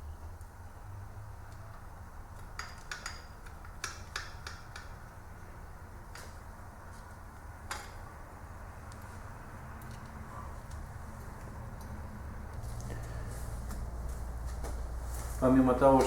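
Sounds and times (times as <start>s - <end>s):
metallic clicks of engine parts: 2.3s - 5.2s, 9.8s - 10.8s.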